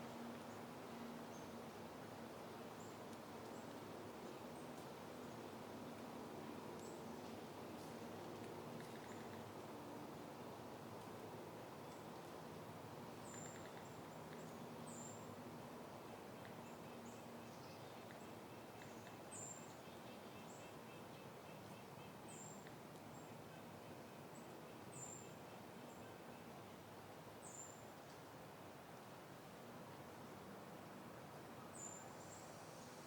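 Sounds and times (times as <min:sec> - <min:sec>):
soft wind: 0:00.0 - 0:33.0.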